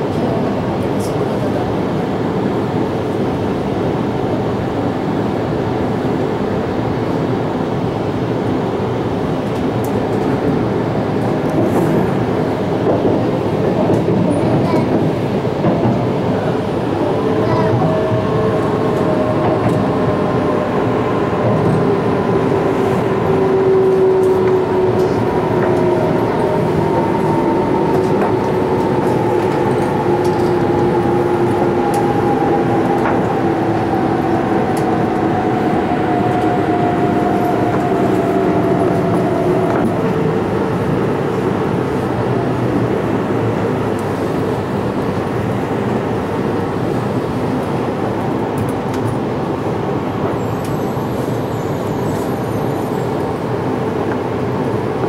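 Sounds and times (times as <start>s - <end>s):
train wheels rumbling on rail: 0.0s - 55.0s
train motor whine: 18.0s - 40.2s.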